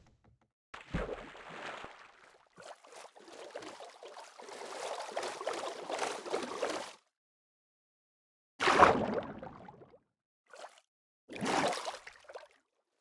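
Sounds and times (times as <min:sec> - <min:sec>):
water splashing and gurgling: 0:00.8 - 0:07.1, 0:08.6 - 0:09.8.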